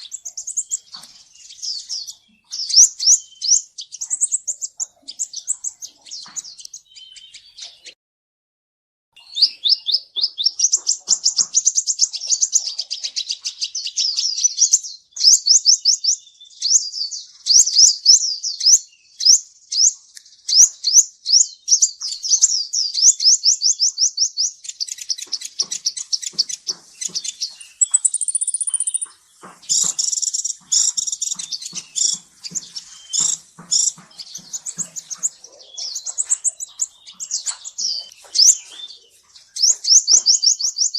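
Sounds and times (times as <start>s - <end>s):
bird high-pitched trills: 20.5s - 40.9s
thin bird whistle: 27.7s - 29.0s.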